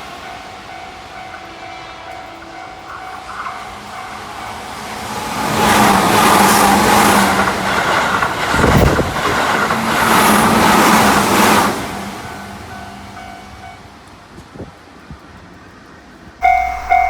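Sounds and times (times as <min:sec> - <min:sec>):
crossing warning bell ringing: 0:00.0 - 0:07.8, 0:12.3 - 0:14.0, 0:16.4 - 0:17.0
train wheels rushing on rails: 0:00.0 - 0:17.0.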